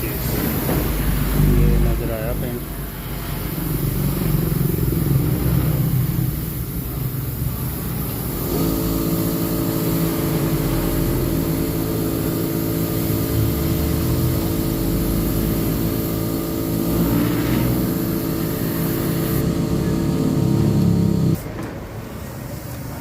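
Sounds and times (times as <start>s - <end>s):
steady motor hum: 0.0s - 21.4s
higher motor tone: 8.4s - 21.4s.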